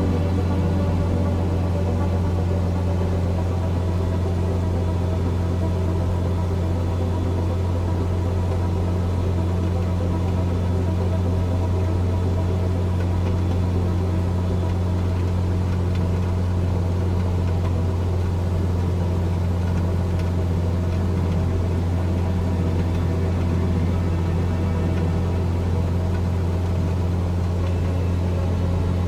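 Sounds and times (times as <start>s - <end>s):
light aircraft engine drone: 0.0s - 29.0s.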